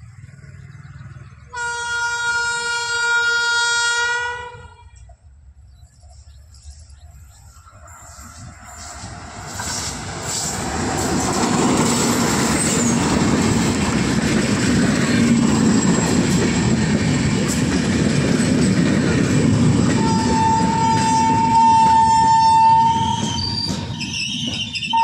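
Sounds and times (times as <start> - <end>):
train horn: 1.5 - 5.0, 19.8 - 23.8
train wheels rumbling and rattling: 4.8 - 25.0.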